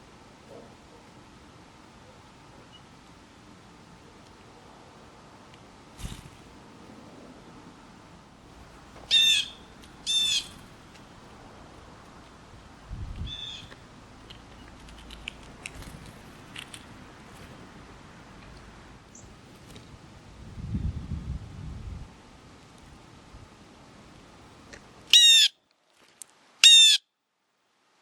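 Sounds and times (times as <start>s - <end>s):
birds calling: 8.6s - 11.2s, 13.2s - 16.5s, 25.1s - 25.5s, 26.6s - 27.0s.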